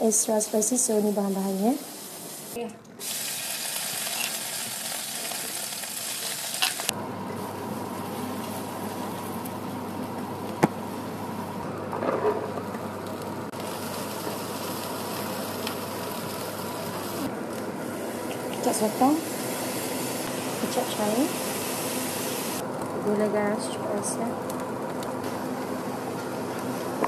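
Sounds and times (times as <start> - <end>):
food sizzling in a wok: 0.0 - 9.4, 13.6 - 22.6.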